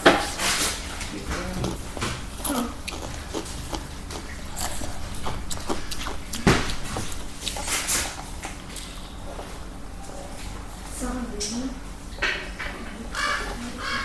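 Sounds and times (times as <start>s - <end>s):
person chewing crunchy chips: 0.3s - 9.7s.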